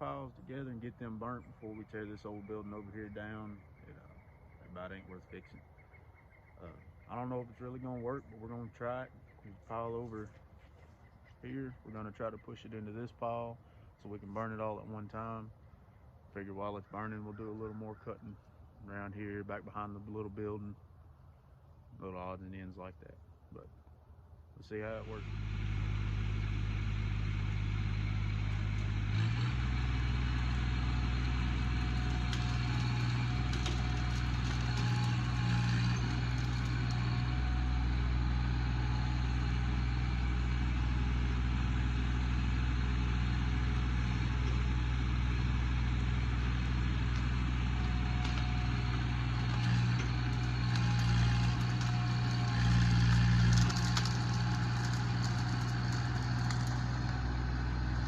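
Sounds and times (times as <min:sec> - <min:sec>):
tractor engine running: 0:00.0 - 0:03.6, 0:24.7 - 0:58.0.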